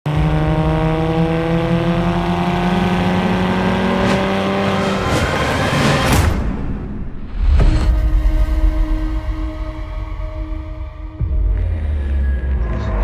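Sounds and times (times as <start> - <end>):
car engine accelerating: 0.1 - 6.4.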